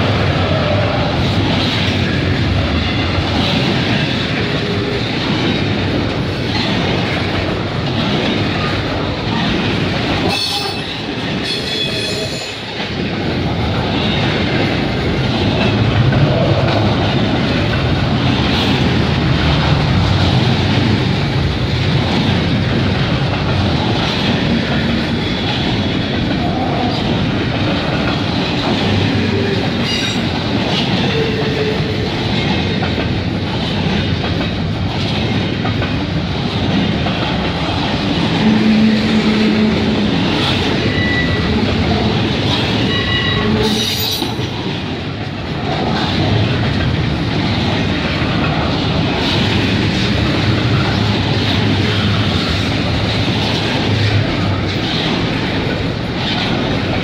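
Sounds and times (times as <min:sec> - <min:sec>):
freight train rumbling past: 0:00.0 - 0:57.0
wheel squeals: 0:40.8 - 0:41.6.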